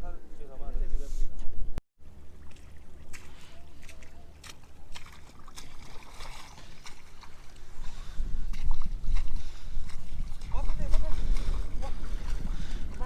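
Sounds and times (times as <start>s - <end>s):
shallow water splashing: 2.0s - 13.0s
wind rumble on microphone: 7.5s - 13.0s.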